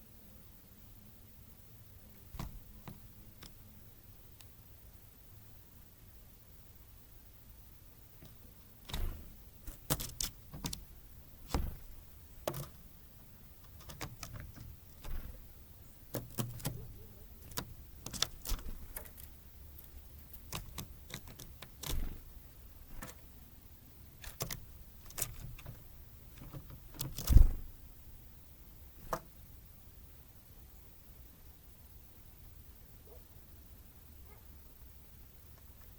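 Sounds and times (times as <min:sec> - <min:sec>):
birds pecking at a feeder: 0:08.2 - 0:23.4, 0:24.1 - 0:27.7
dull thumps of birds landing: 0:11.4 - 0:12.7.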